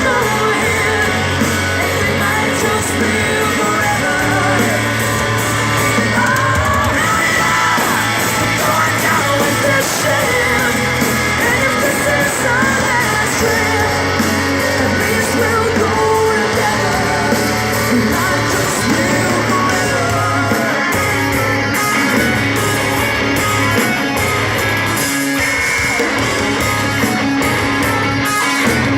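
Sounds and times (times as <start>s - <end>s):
person singing loudly: 0.0s - 21.0s
drums: 0.0s - 28.9s
electric guitars: 0.0s - 28.9s.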